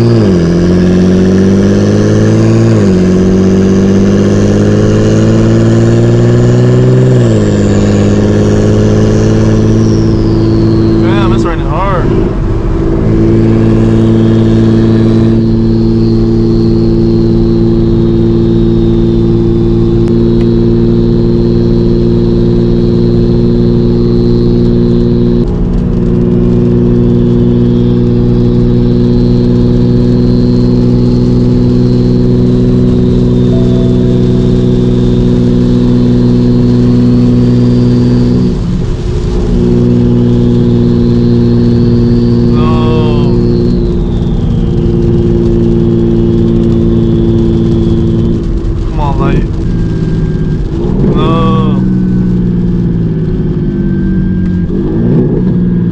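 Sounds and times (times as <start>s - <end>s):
car engine droning: 0.0s - 55.9s
faint high whine: 33.5s - 35.5s.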